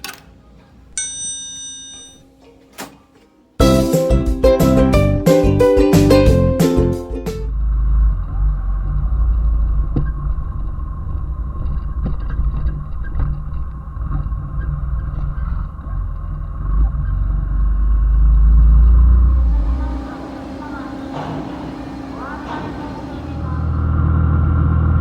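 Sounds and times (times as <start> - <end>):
motorcycle engine running: 19.3 - 23.9.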